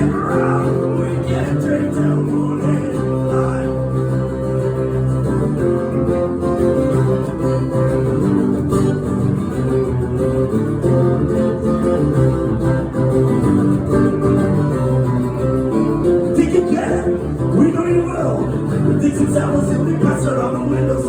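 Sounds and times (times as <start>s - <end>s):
person singing: 0.0s - 4.2s, 16.3s - 21.0s
acoustic guitar strumming chords: 0.0s - 21.0s.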